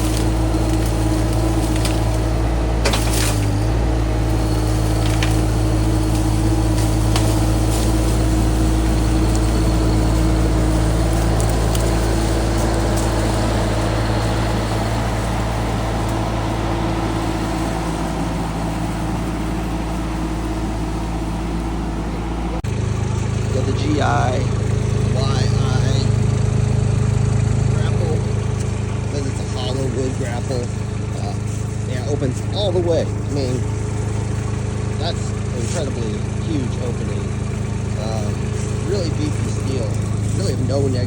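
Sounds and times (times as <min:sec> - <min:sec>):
skid steer engine running: 0:00.0 - 0:41.0.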